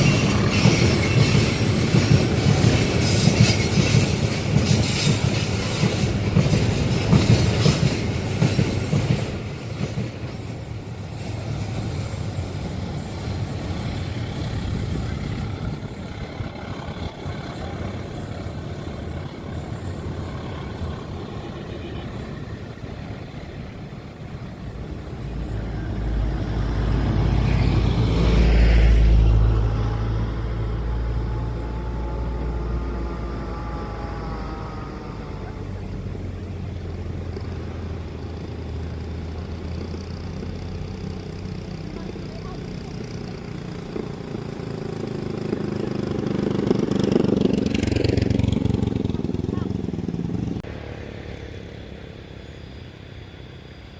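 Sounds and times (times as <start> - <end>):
train wheels clattering and squealing: 0.0 - 50.6
falling whine: 24.1 - 39.2
low engine rumble: 24.2 - 53.0.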